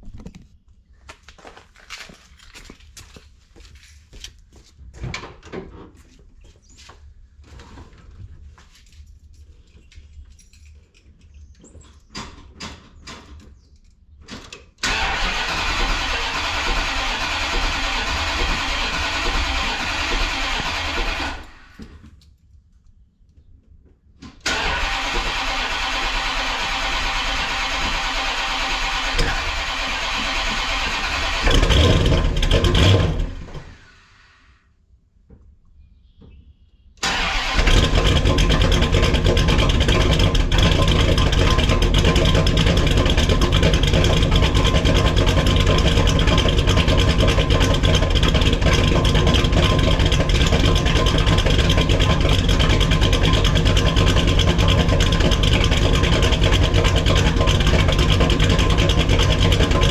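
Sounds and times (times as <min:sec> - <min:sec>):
car engine starting and running: 0:14.8 - 0:22.0, 0:24.3 - 0:34.5, 0:37.0 - 0:59.9.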